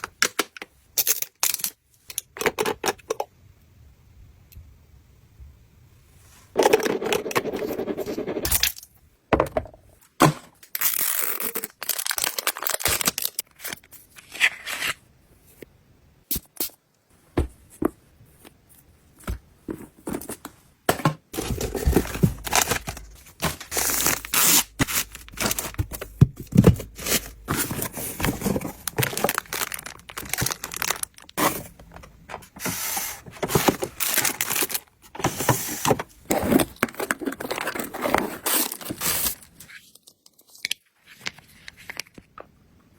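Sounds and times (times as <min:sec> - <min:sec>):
packaging being torn open: 0:10.7 - 0:13.8
packaging crinkling and scraping: 0:10.7 - 0:15.0, 0:21.3 - 0:42.3.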